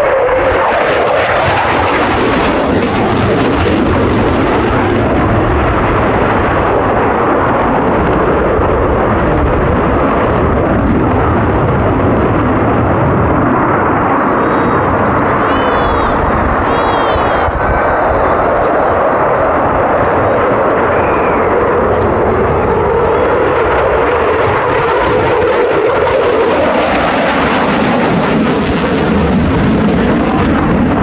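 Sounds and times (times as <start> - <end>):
fighter jet engine roar: 12.6 - 31.0.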